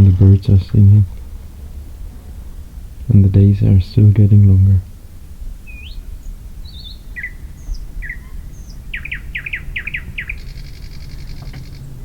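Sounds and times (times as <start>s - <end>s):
low background rumble: 0.0s - 12.0s
songbirds chirping: 0.0s - 12.0s.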